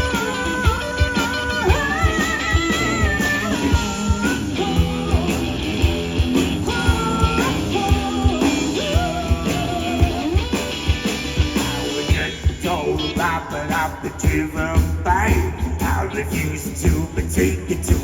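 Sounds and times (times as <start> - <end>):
lead guitar bending notes: 0.0 - 13.6
bass guitar: 0.0 - 18.0
steady drum beat: 0.0 - 18.0.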